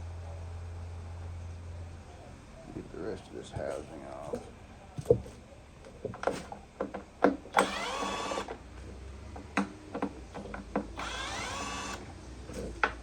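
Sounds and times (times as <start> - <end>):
cordless screwdriver running: 7.6 - 8.5, 11.0 - 12.0.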